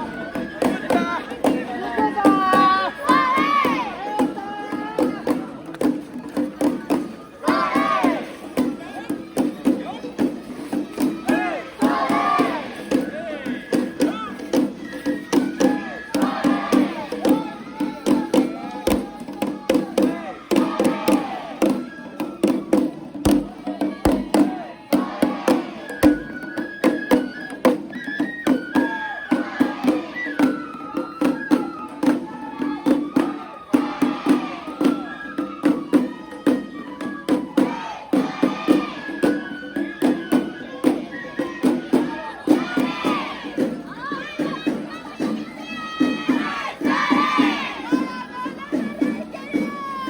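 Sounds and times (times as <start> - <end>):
voices: 0.0 - 50.0
high flute melody: 10.9 - 19.1, 19.7 - 50.0.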